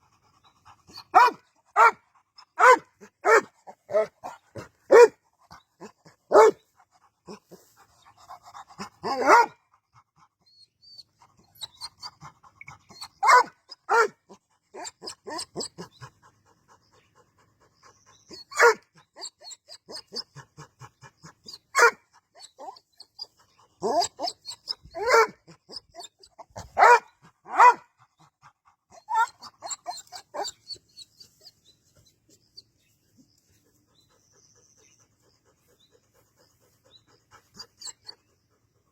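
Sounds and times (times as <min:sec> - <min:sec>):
dog panting: 0:00.0 - 0:38.9
dog barking: 0:01.1 - 0:02.0, 0:02.6 - 0:04.1, 0:04.9 - 0:05.2, 0:06.3 - 0:06.6, 0:09.0 - 0:09.6, 0:13.2 - 0:14.2, 0:18.5 - 0:18.8, 0:21.7 - 0:22.0, 0:25.0 - 0:25.4, 0:26.6 - 0:27.9.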